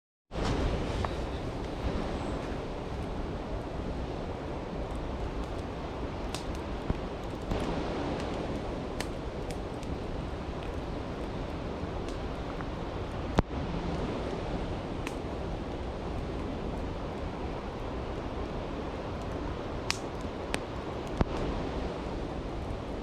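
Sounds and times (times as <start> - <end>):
campfire crackling and popping: 0.4 - 23.0.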